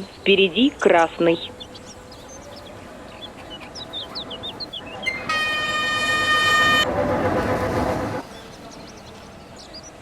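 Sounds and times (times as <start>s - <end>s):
small birds chirping: 0.0s - 5.3s, 8.2s - 10.0s
train horn blast: 5.1s - 7.2s.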